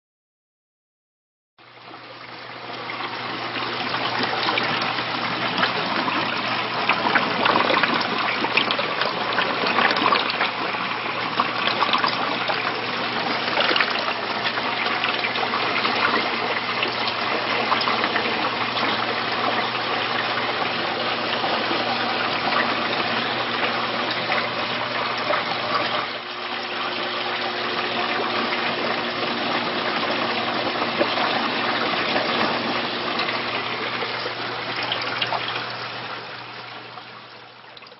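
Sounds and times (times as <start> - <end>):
water gushing and trickling: 1.6 - 37.9.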